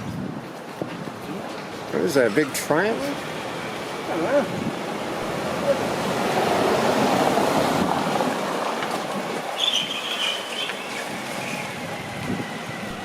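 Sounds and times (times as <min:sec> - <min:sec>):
vehicle passing: 0:03.0 - 0:13.0
brief high squeal: 0:09.6 - 0:11.8.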